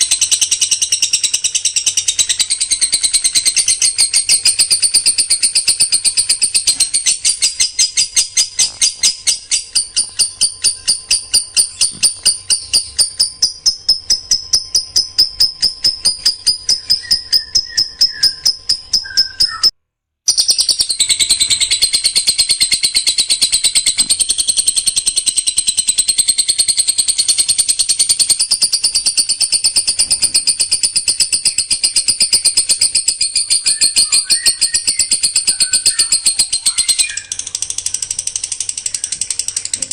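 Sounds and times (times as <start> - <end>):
songbird rapid high notes: 0.0 - 19.7.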